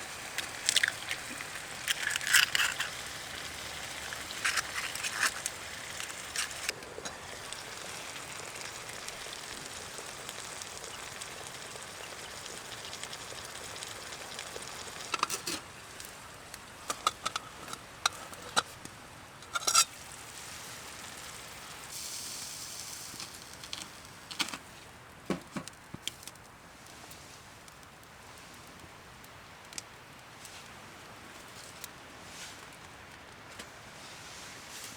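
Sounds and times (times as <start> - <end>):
steady sizzling hiss: 0.0 - 34.9
wood crackling pops: 0.3 - 7.6.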